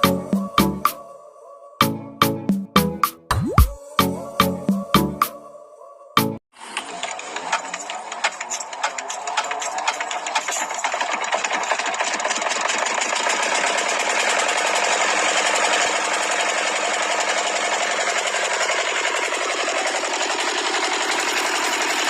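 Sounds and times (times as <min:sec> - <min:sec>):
small motor rattling: 0:06.6 - 0:22.0.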